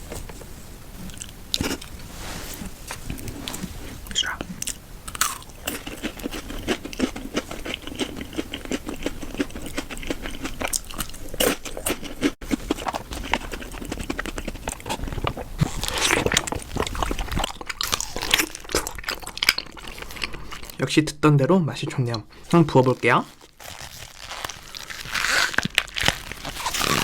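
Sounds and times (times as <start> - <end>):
chewing with wet clicking: 4.1 - 20.8.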